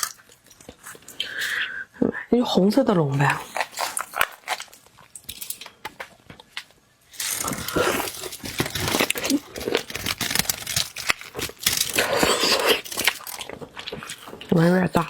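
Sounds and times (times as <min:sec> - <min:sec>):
shellfish shell being peeled: 0:07.1 - 0:13.5.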